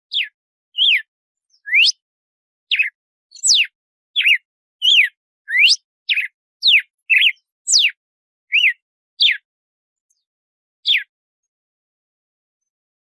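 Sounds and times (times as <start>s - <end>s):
bird whistling song: 0.1s - 2.0s, 2.7s - 9.5s, 10.1s - 11.1s.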